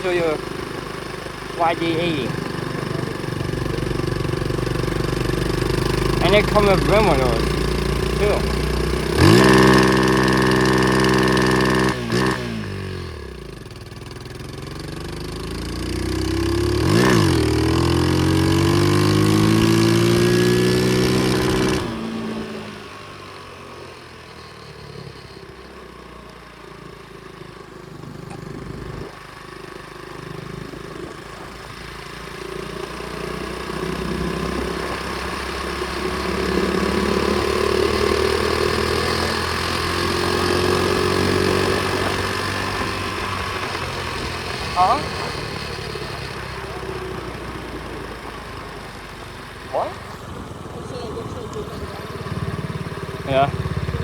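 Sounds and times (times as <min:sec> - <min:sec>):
motorbike engine running: 0:00.0 - 0:54.0.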